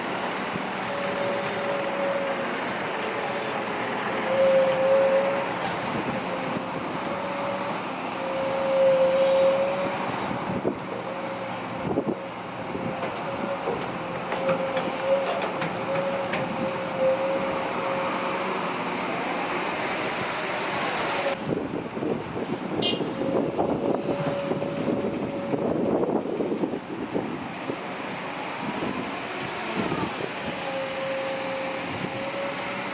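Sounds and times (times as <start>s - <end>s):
excavator high whine: 0.0s - 32.9s
knocks and clanks: 13.0s - 16.6s.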